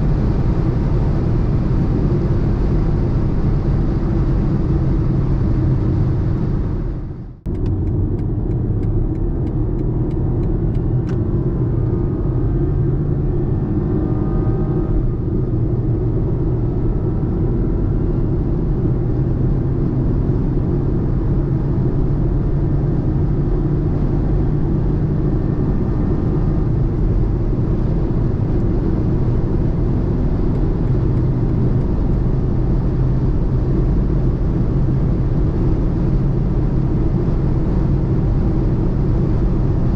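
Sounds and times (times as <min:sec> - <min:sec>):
car engine running at speed: 0:00.0 - 0:39.9.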